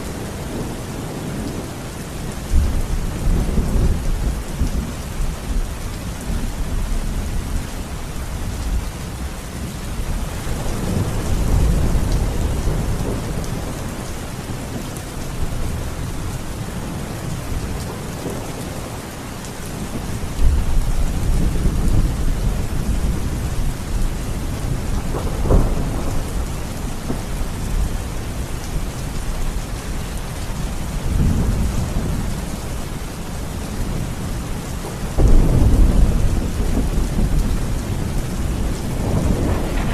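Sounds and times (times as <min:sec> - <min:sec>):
low rolling thunder: 0:00.0 - 0:07.6, 0:08.6 - 0:39.9
steady rain falling: 0:00.0 - 0:39.9
sharp thunderclap: 0:24.6 - 0:27.9, 0:35.1 - 0:39.9.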